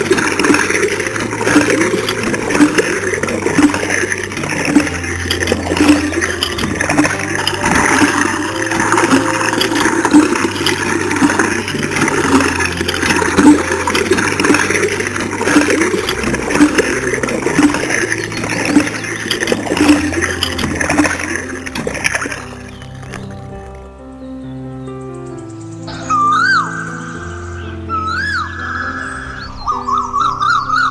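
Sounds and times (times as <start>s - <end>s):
water gushing from a pump: 0.0s - 23.9s.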